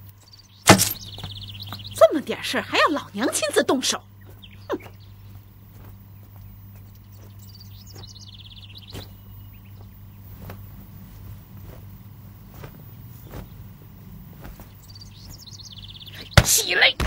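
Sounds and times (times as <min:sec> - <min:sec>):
bird chirping trill: 0:00.0 - 0:10.8, 0:11.4 - 0:17.0
steady low hum: 0:00.0 - 0:17.0
soft rustles and taps: 0:04.3 - 0:08.2, 0:08.8 - 0:15.5.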